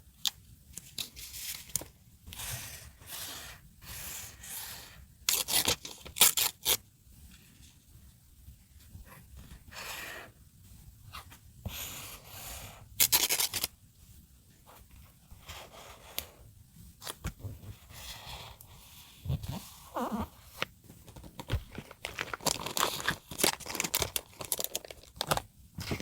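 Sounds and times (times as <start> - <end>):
paper rustling: 0.8 - 3.4, 19.4 - 26.0.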